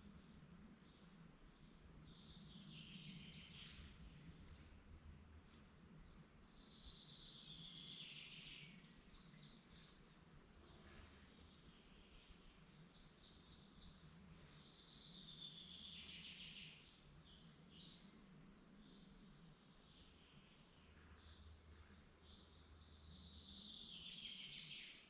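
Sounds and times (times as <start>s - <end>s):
songbird singing trills: 0.9s - 4.3s, 6.1s - 25.0s.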